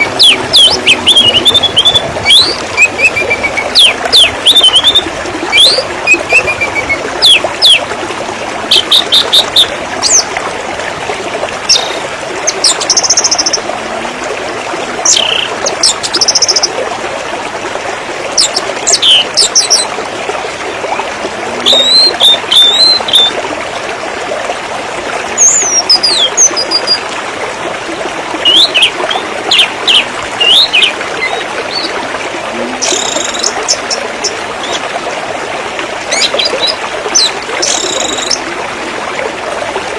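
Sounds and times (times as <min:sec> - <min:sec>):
birds chirping and trilling: 0:00.0 - 0:07.8, 0:18.4 - 0:19.9, 0:21.6 - 0:23.4, 0:28.4 - 0:32.0
running water rushing: 0:00.0 - 0:39.9.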